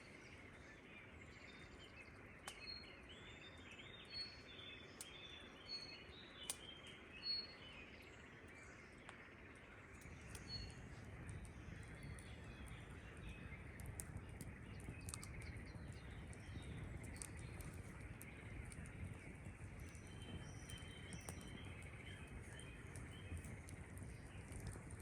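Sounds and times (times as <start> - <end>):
small birds chirping: 0.0 - 25.0
low background rumble: 9.6 - 25.0.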